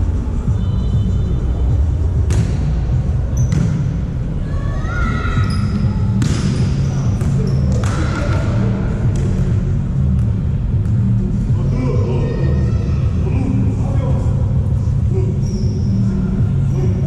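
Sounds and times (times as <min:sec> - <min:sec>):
low rumble of voices: 0:00.0 - 0:17.0
volleyball strikes echoing: 0:02.2 - 0:02.8, 0:03.4 - 0:04.0, 0:05.4 - 0:09.5.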